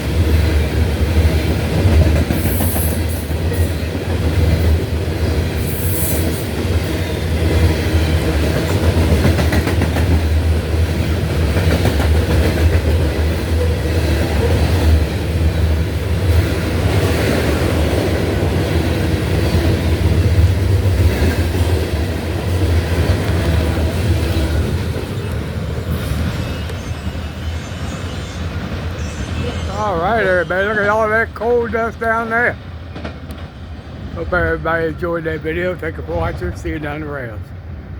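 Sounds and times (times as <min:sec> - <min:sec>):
wheels clacking over rail joints: 0:00.0 - 0:27.0
train cars rumbling past: 0:00.0 - 0:37.9.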